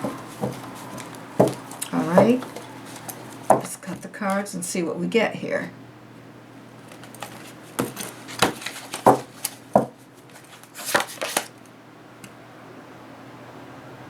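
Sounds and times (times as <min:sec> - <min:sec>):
cards rustling: 0:00.0 - 0:03.7, 0:06.8 - 0:11.7
cards tapping on table: 0:00.0 - 0:03.7, 0:06.9 - 0:11.5.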